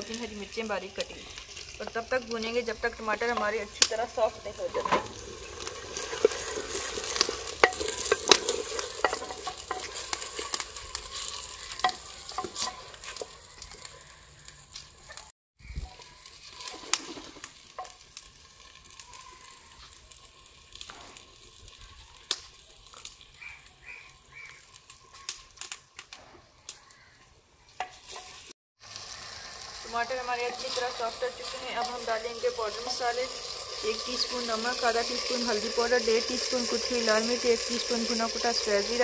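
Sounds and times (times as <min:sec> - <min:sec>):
food sizzling in oil: 0:00.0 - 0:39.0
wooden spoon scraping: 0:04.6 - 0:14.2, 0:16.2 - 0:18.0, 0:27.8 - 0:28.5.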